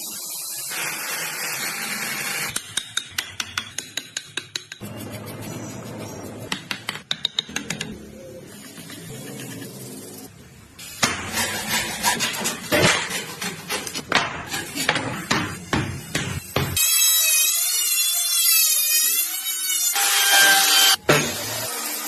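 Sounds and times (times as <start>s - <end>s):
tool tapping on wood: 2.5s - 4.9s, 6.5s - 8.0s.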